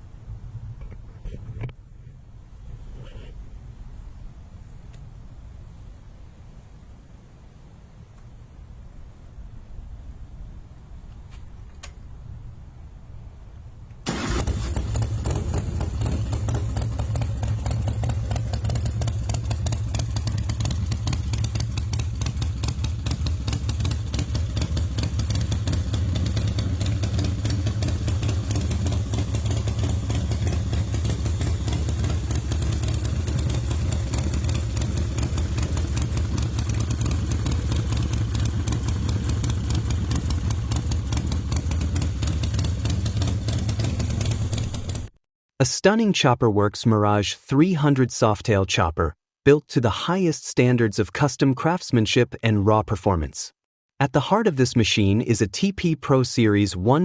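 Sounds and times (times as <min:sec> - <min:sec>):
motorcycle engine rumbling: 0:00.0 - 0:45.2.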